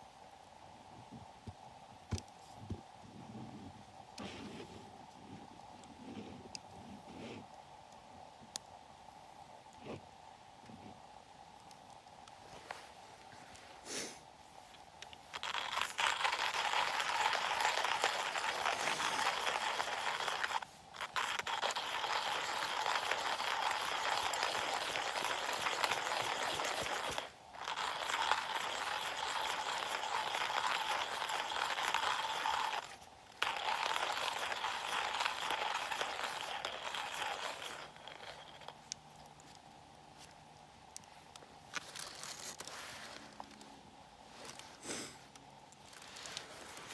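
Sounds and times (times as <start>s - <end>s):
coffee mill grinding beans: 15.1s - 38.8s.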